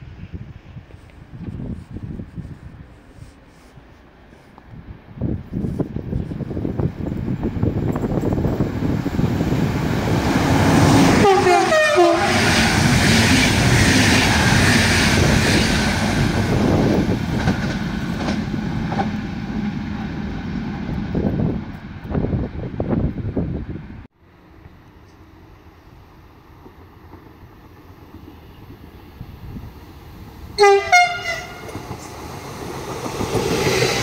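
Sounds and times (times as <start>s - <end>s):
train wheels rushing on rail: 0.0s - 34.0s
train horn blast: 11.0s - 12.7s, 30.6s - 31.8s.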